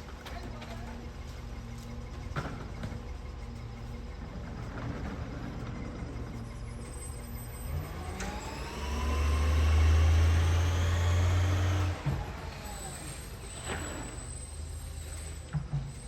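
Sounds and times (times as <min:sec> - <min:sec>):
truck engine revving: 0:07.5 - 0:14.2.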